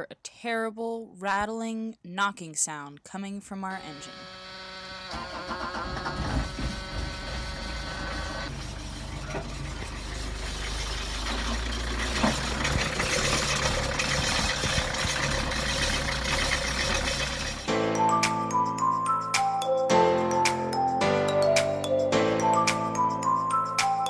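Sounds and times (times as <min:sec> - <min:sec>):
diesel engine rattling and knocking: 0:05.1 - 0:17.7.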